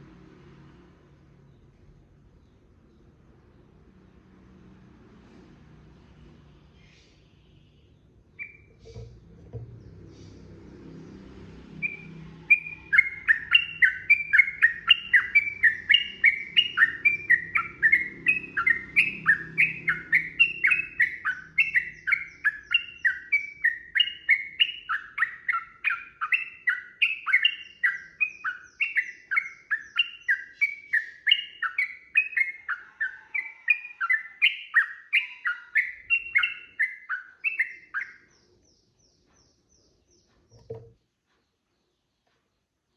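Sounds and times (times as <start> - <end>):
bird singing chattering phrases: 6.8 - 10.6, 11.8 - 42.6.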